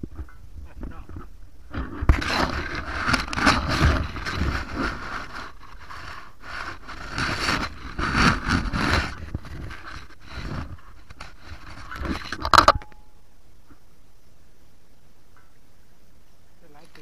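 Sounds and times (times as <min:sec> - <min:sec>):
scraping and rustling: 0:00.0 - 0:13.1.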